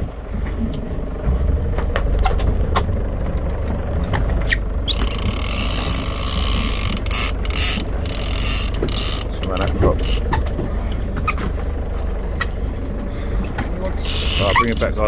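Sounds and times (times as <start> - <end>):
low rumble: 0.0 - 15.0
fishing reel drag buzzing: 4.8 - 10.4, 14.0 - 14.9.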